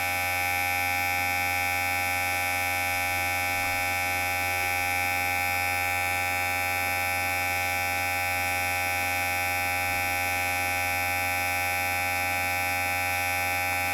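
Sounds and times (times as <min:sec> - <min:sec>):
electric hair clipper buzzing: 0:02.9 - 0:13.9.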